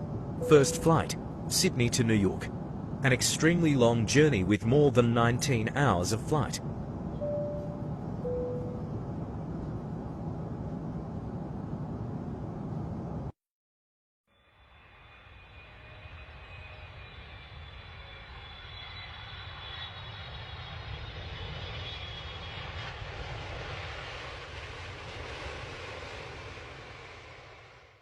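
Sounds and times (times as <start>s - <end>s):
jet engines running: 0.0s - 13.3s.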